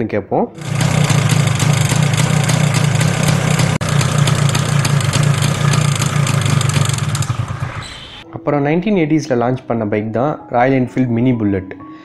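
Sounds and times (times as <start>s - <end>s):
two-stroke engine idling: 0.6s - 8.2s.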